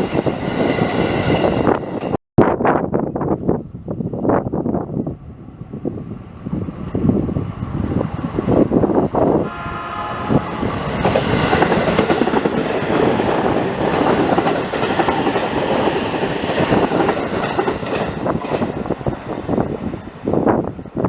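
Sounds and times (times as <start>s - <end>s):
train rumbling past: 0.0s - 2.2s, 3.2s - 21.0s
train horn blast: 9.4s - 11.3s.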